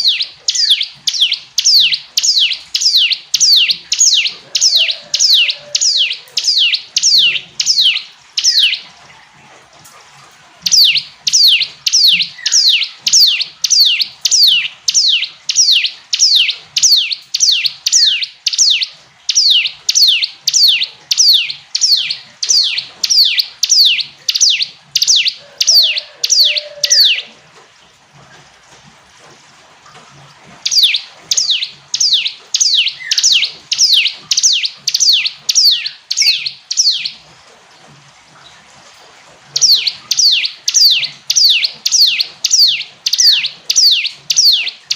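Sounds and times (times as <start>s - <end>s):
bird singing down-sweeping notes: 30.7s - 37.2s, 39.6s - 44.9s.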